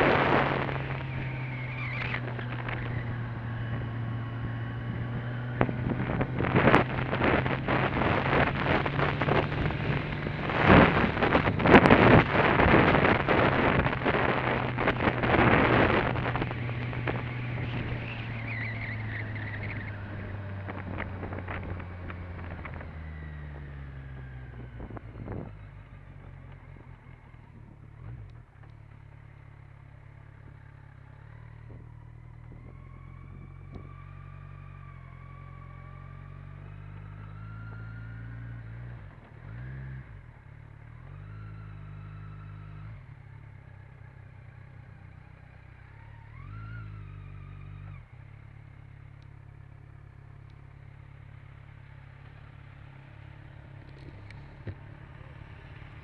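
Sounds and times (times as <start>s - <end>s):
motorcycle engine running: 0.0s - 56.0s
wind buffeting the microphone: 4.8s - 18.0s, 24.3s - 25.8s.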